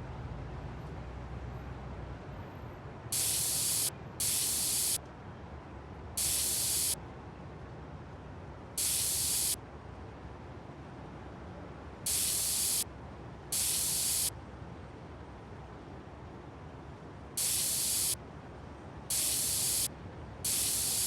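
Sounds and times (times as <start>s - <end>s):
hissing spray bursts: 3.1s - 5.0s, 6.2s - 7.0s, 8.8s - 9.6s, 12.1s - 12.8s, 13.5s - 14.3s, 17.4s - 18.2s, 19.1s - 21.0s.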